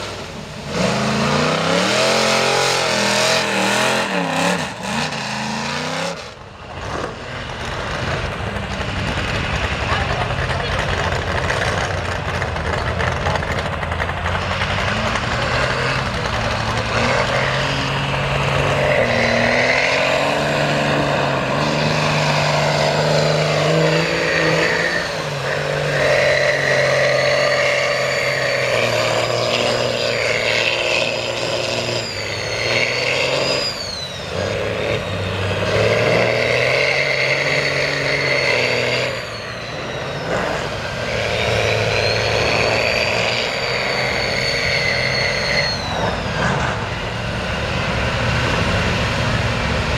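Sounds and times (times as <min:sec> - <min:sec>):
truck engine revving: 0:00.0 - 0:49.9
high whine: 0:14.3 - 0:49.9.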